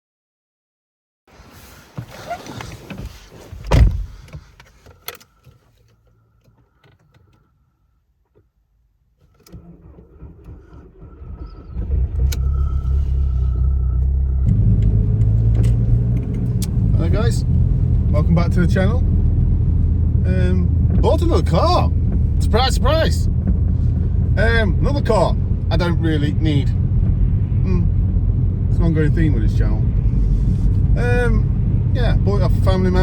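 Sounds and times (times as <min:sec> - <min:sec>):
loud thump: 0:03.6 - 0:04.2
diesel engine rumbling: 0:09.5 - 0:33.0.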